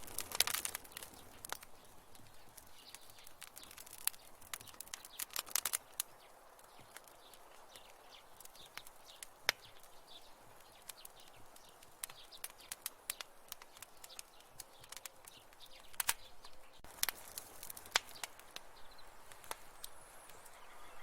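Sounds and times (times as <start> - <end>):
soft fire hiss: 0.0 - 21.0
wood fire crackling: 0.0 - 21.0.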